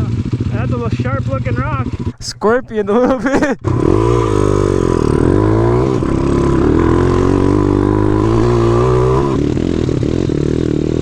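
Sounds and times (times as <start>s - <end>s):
pit bike engine revving: 3.1s - 9.5s.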